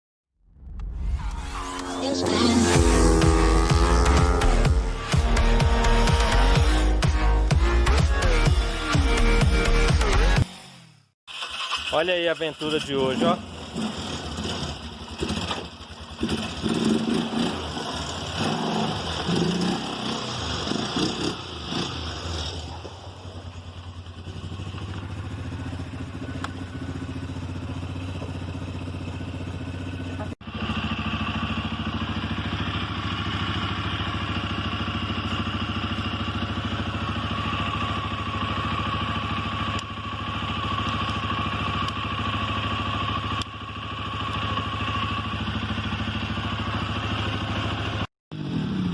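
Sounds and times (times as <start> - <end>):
quad bike engine running: 1.8 - 48.9.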